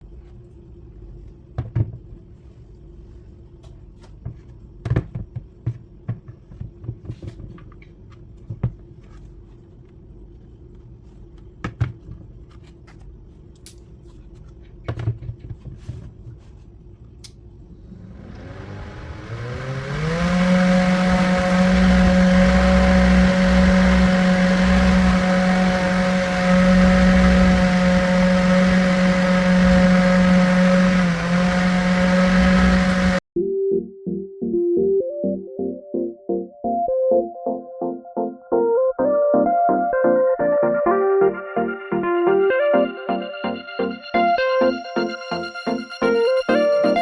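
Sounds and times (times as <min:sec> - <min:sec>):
table fan whirring: 0:17.8 - 0:33.2.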